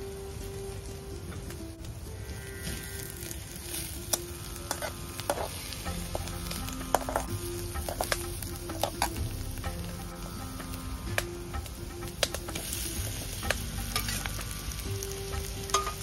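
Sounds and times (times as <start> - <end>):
onions sizzling in oil: 0.0 - 16.0
metal spatula scraping pan: 2.6 - 9.4, 11.9 - 16.0.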